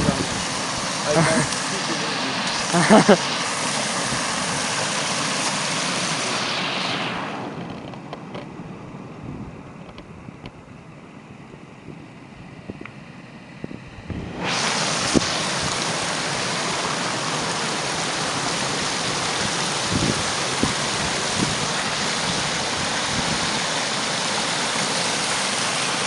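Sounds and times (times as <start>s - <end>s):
rushing stream water: 0.0s - 8.0s, 14.2s - 26.0s.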